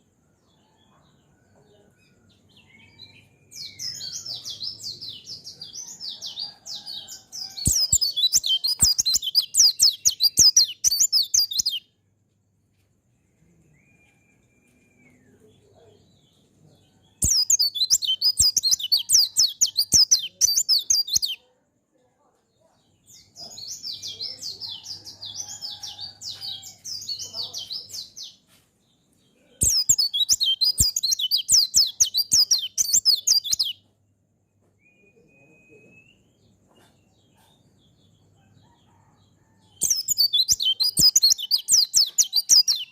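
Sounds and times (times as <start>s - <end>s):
bird singing high chirps: 2.0s - 5.5s, 6.4s - 11.9s, 17.1s - 21.4s, 29.5s - 33.8s, 39.8s - 42.9s.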